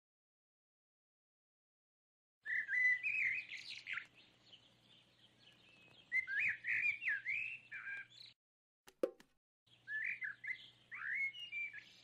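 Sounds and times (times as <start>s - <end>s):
songbirds singing: 2.4s - 8.4s, 9.7s - 12.0s
brief knock: 8.9s - 9.3s.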